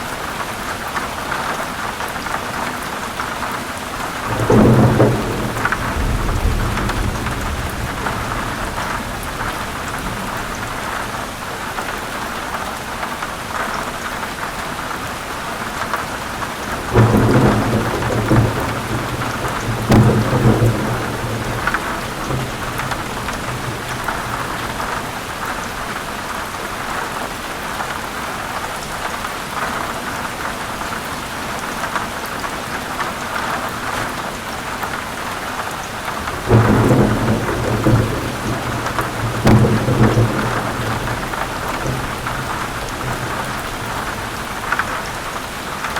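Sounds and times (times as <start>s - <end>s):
heavy rain falling: 0.0s - 45.9s
thunder rolls: 4.2s - 11.9s, 16.4s - 25.9s, 36.1s - 45.4s.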